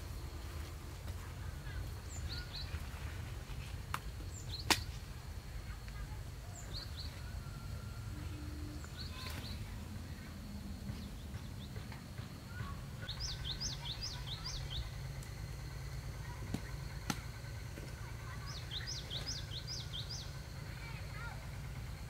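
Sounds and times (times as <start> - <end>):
low outdoor rumble: 0.0 - 22.0
songbird trilling: 1.6 - 2.8, 12.5 - 15.3, 18.2 - 20.5
faint steady high tone: 5.9 - 10.6.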